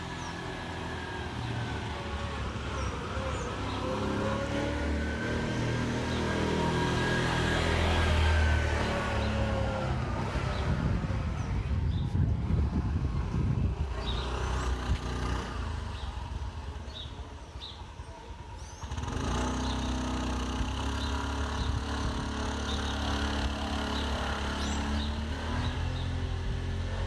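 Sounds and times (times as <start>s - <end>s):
small engine running: 18.7s - 27.0s.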